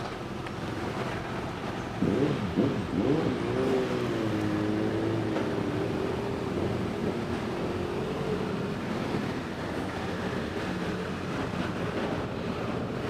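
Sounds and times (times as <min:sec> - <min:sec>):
motorcycle engine pulling away: 0:02.0 - 0:06.4.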